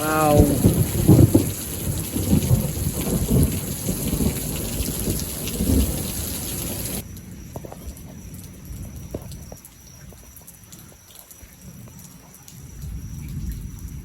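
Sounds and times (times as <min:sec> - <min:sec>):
thunder rumbling: 0:00.0 - 0:09.4
rain hissing: 0:00.0 - 0:10.0
water dripping: 0:00.0 - 0:14.0.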